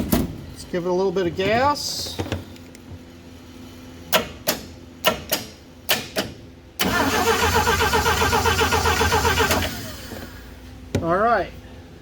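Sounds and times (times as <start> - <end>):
starter cranking engine: 6.8 - 10.3.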